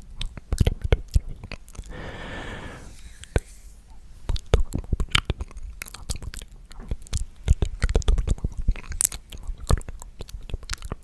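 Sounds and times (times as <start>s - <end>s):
person whispering: 1.9s - 3.0s.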